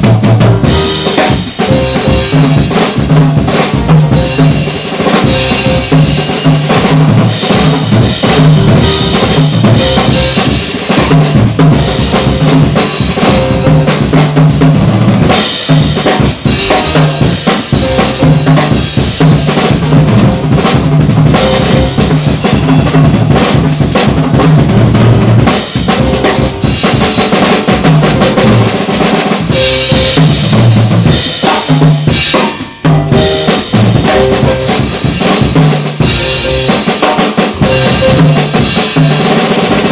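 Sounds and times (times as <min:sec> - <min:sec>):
jazz drum kit playing: 0:00.0 - 0:39.9
low pitched notes: 0:05.2 - 0:14.0, 0:16.5 - 0:18.7, 0:37.6 - 0:39.0.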